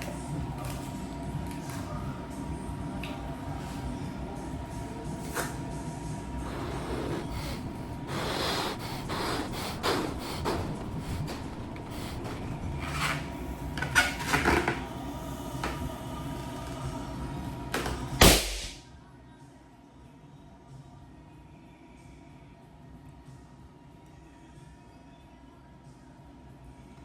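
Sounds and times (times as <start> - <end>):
balloon squeaky rubbing: 6.4 - 13.2
balloon bursting pop: 18.2 - 18.8.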